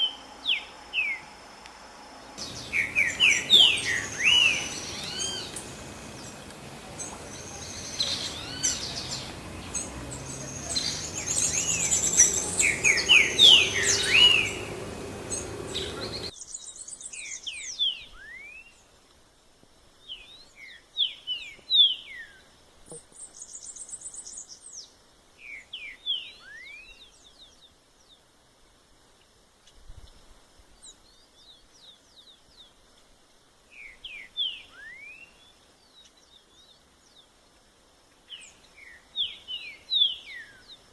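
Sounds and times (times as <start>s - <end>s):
background noise: 0.0s - 40.9s
bird singing whistled phrases: 2.4s - 16.3s.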